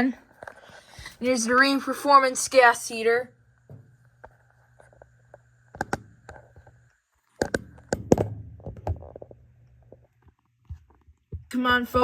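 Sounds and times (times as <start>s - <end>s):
steady low hum: 0.0s - 12.0s
sharp clicks and knocks: 5.8s - 6.8s, 7.4s - 11.5s.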